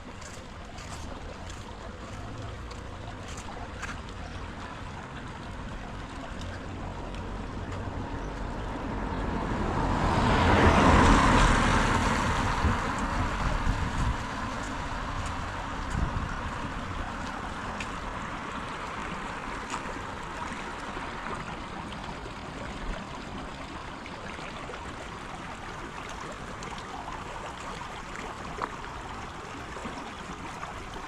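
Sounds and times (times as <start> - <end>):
water drips ticking: 0.0 - 9.2, 10.8 - 31.0
car passing on wet road: 6.8 - 23.4.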